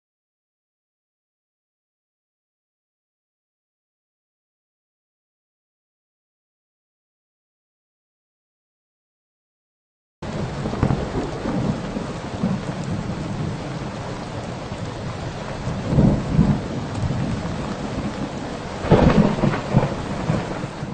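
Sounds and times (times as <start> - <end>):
heavy rain: 10.2 - 20.9
thunder rumbling: 10.2 - 20.9.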